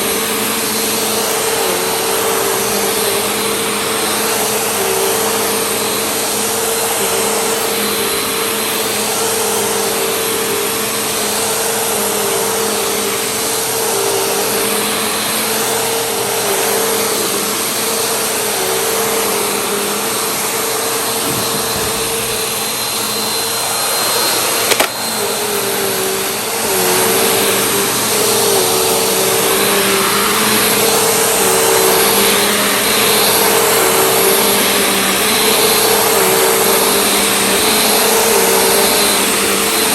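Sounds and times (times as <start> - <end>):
vacuum cleaner running: 0.0 - 39.9
sharp knock: 21.2 - 22.8.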